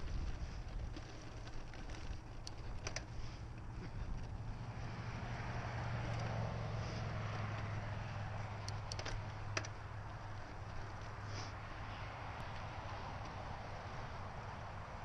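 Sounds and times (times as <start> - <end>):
wind on microphone: 0.0 - 1.0
bike clicks and rattles: 0.0 - 15.0
bike tyres rumbling on dirt: 0.0 - 15.0.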